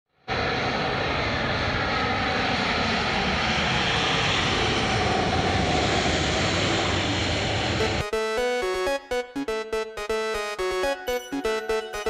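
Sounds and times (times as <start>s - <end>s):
airliner jet engines rushing: 0.3s - 7.8s.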